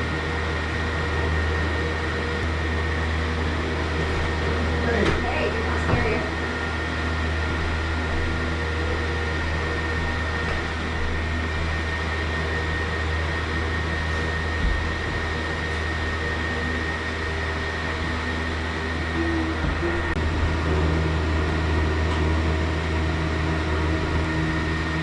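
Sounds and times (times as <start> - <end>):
high steady whine: 0.0 - 25.0
low motor hum: 0.0 - 25.0.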